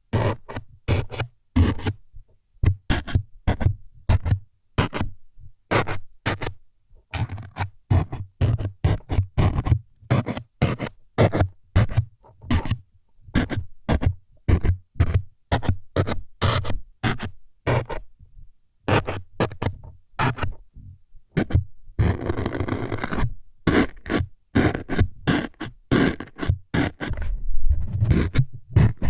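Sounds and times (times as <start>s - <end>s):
scratchy needle jabs: 25.9s - 29.0s.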